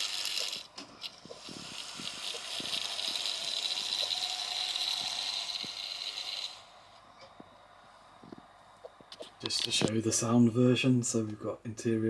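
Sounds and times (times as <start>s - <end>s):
model train motor whirring: 0.0s - 6.9s.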